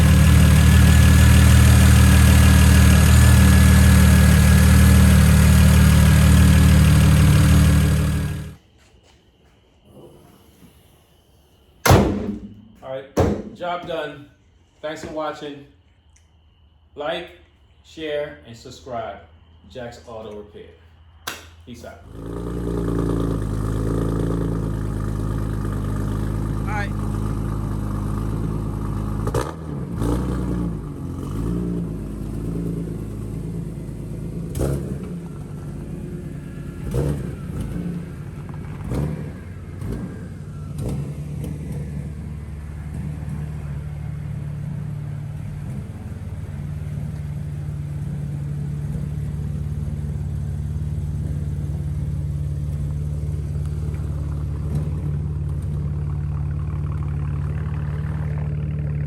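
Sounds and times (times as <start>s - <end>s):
car engine idling: 0.0s - 8.6s, 22.0s - 59.0s.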